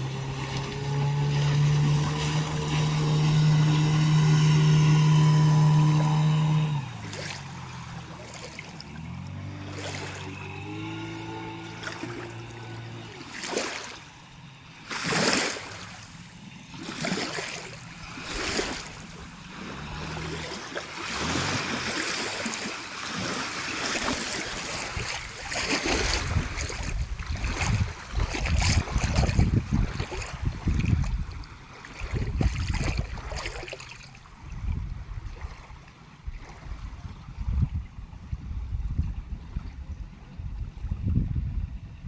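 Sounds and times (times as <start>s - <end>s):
wind buffeting microphone: 0.0s - 13.6s, 23.2s - 42.0s
outboard engine hum: 0.0s - 42.0s
water splashing along hull: 0.0s - 42.0s.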